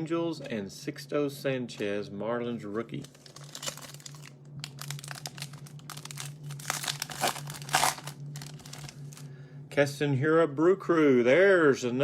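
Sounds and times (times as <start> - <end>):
card pack wrapper crinkling and tearing: 3.0 - 9.3.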